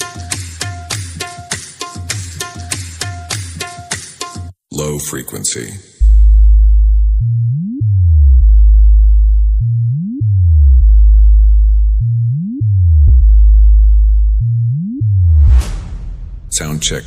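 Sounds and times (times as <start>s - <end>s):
sub-bass test tone sweeping: 6.0s - 17.0s.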